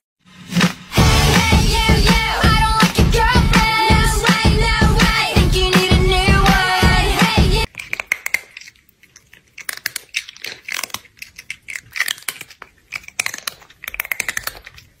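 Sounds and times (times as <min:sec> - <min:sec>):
person chewing crunchy food: 0:07.6 - 0:15.0.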